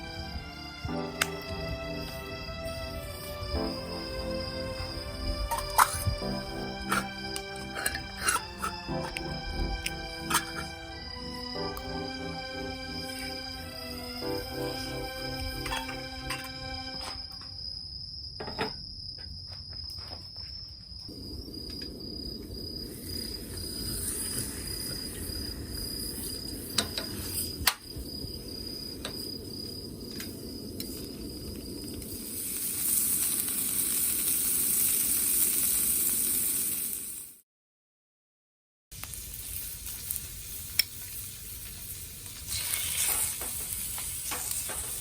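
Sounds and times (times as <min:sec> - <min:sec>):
low even hiss: 0:00.0 - 0:17.3
high hiss: 0:00.0 - 0:17.7, 0:21.1 - 0:37.4, 0:39.0 - 0:45.0
insect trill: 0:00.0 - 0:35.4, 0:39.7 - 0:45.0.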